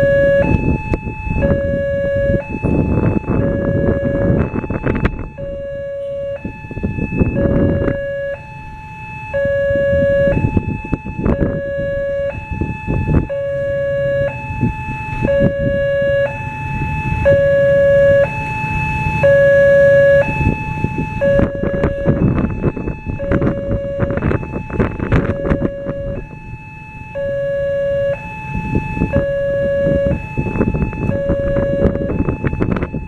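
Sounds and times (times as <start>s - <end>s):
level-crossing two-tone alarm: 0.0s - 33.0s
road traffic noise: 0.0s - 33.0s.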